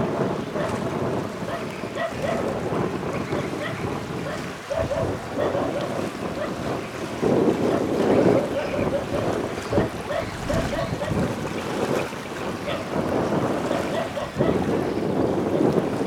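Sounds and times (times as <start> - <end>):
wind buffeting microphone: 0.0 - 16.0
water washing: 5.0 - 12.6.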